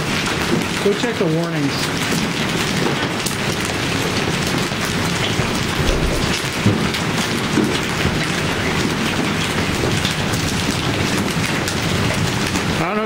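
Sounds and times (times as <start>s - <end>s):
hailstones pelting down: 0.0s - 6.7s, 9.0s - 13.0s
heavy rain: 0.0s - 13.0s.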